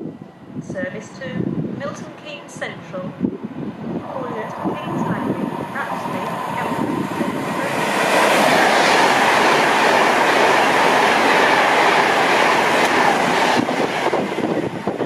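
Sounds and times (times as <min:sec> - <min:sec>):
train wheels on track: 0:03.2 - 0:15.0.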